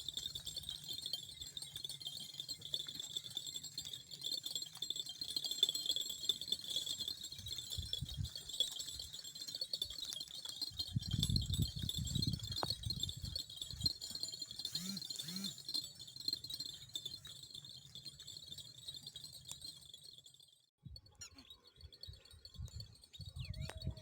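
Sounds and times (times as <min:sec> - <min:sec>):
insects chirring: 0:14.6 - 0:15.6.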